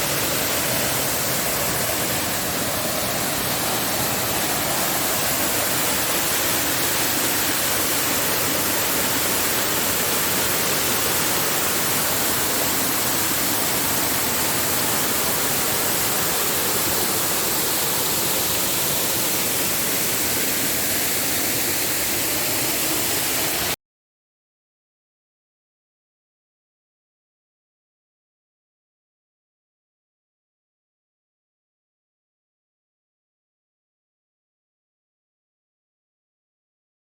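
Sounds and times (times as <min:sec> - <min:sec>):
waterfall roaring: 0:00.0 - 0:23.8.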